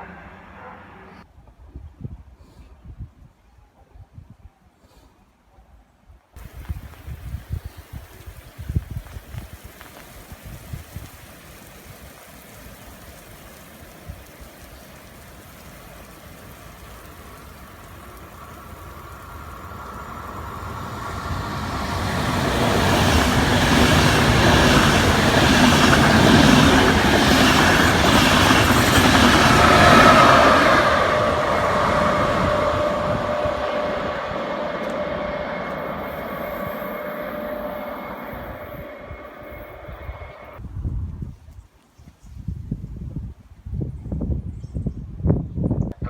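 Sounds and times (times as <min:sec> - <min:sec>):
train running through station: 0:00.0 - 0:01.2, 0:06.4 - 0:40.6
steady tones: 0:13.2 - 0:40.6.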